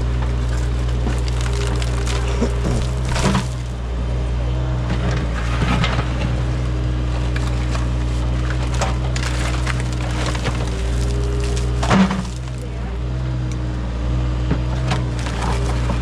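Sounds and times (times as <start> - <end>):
bucket crunching through dirt: 0.0 - 3.8, 5.4 - 12.7, 14.8 - 16.0
excavator diesel engine running: 0.0 - 16.0.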